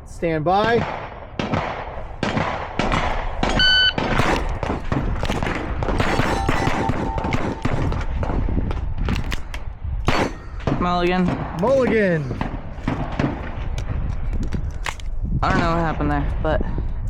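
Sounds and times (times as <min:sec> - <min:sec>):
pistol shots: 0:00.6 - 0:13.9
electronic start beep: 0:03.6 - 0:04.0.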